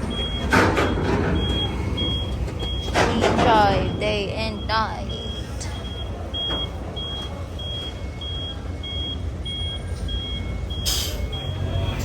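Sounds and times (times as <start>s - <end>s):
vehicle reversing alarm beeping: 0.0s - 12.0s.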